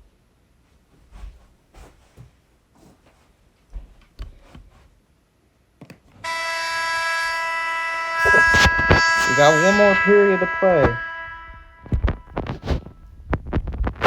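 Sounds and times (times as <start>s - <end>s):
loud hockey horn: 6.2s - 12.9s.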